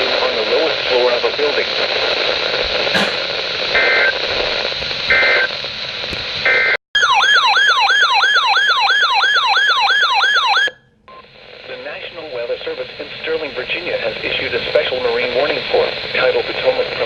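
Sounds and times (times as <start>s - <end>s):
radio static: 0.0s - 5.6s, 11.2s - 17.0s
electronic siren alert tone: 7.0s - 10.8s.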